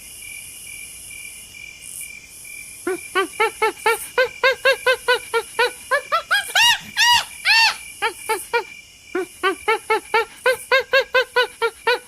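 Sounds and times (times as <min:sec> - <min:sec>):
animal yelping: 0:02.9 - 0:07.8.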